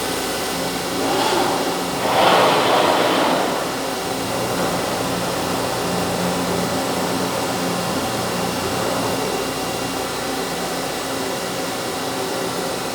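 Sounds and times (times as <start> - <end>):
machine humming: 0.4 - 7.8.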